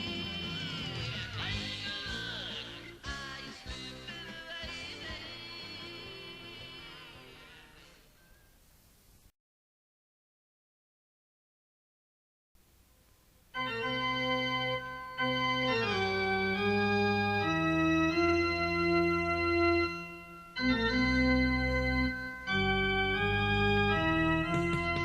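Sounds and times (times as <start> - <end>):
organ chords: 0.0 - 8.0, 13.5 - 25.0.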